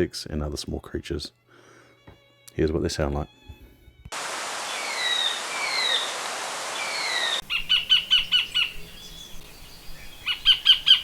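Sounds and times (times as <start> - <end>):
steady hiss: 4.1 - 7.9
kingfisher calling: 4.5 - 9.0, 10.1 - 11.0.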